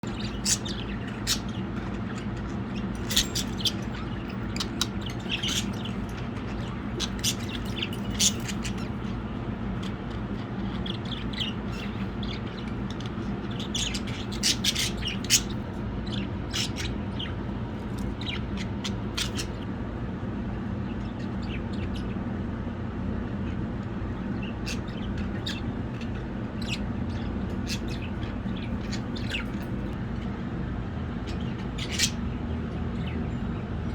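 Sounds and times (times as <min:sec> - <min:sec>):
budgerigars chirping: 0:00.0 - 0:19.7, 0:24.1 - 0:30.0, 0:31.1 - 0:33.9
steady low hum: 0:00.0 - 0:33.9.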